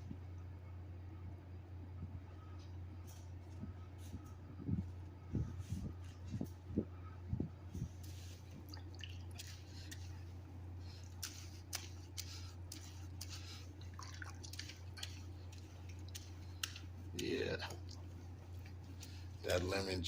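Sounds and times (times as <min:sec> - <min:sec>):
steady low hum: 0:00.0 - 0:20.0
water drips and squishes: 0:08.5 - 0:19.5.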